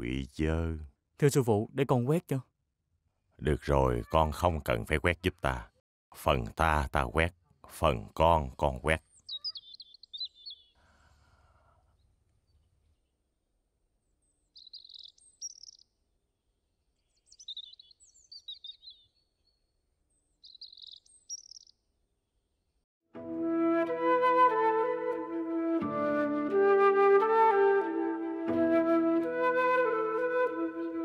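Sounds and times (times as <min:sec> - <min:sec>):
small birds chirping: 0:08.1 - 0:13.3, 0:14.0 - 0:22.8
flute music: 0:23.2 - 0:31.0.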